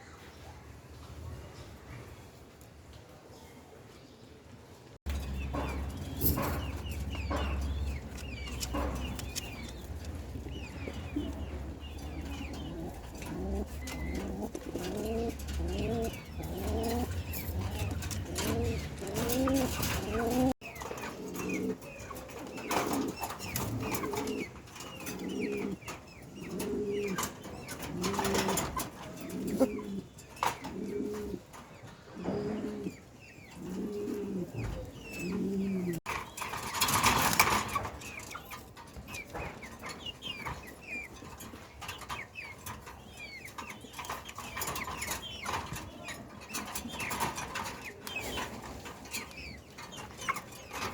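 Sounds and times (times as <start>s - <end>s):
small birds chirping: 5.0s - 50.9s
pigeons cooing: 5.1s - 38.4s.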